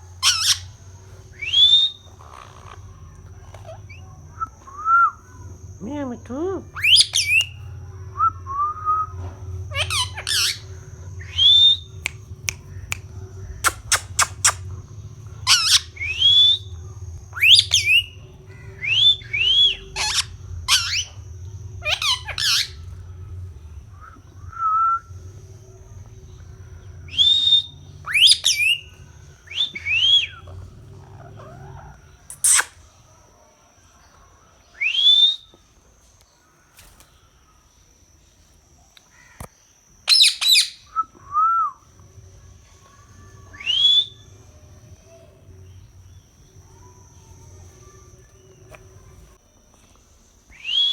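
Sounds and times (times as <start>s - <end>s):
low hum: 0.0s - 33.5s, 40.8s - 50.9s
faint high whine: 0.0s - 50.9s
parrot squawking and whistling: 0.2s - 0.7s, 1.3s - 2.8s, 6.8s - 7.6s, 9.7s - 13.0s, 13.6s - 14.8s, 15.4s - 16.7s, 17.3s - 18.2s, 18.8s - 21.2s, 21.8s - 23.1s, 27.0s - 32.9s, 40.1s - 40.9s.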